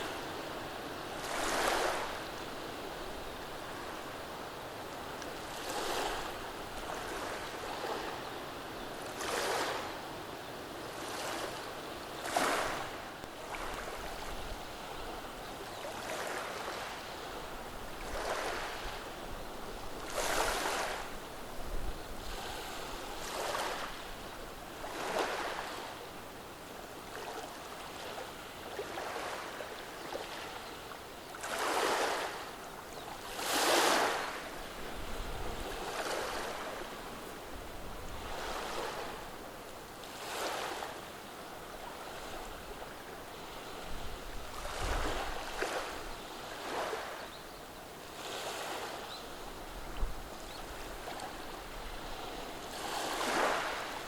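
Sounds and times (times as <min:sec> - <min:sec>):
steady background surf: 0:00.0 - 0:54.0
waves washing over pebbles: 0:01.2 - 0:02.2, 0:12.2 - 0:14.4, 0:18.0 - 0:19.0, 0:33.2 - 0:37.0, 0:44.3 - 0:47.2, 0:50.8 - 0:54.0.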